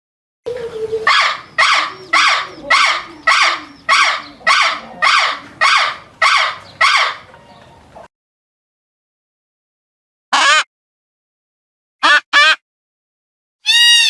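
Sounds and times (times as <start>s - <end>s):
animal calling loudly: 0.5s - 7.5s, 13.6s - 14.0s.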